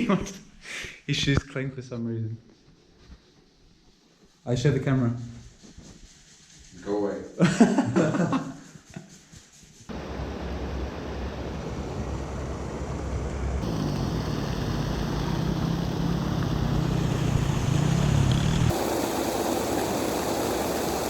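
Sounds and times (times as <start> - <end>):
motorbike engine hum: 9.9 - 21.0.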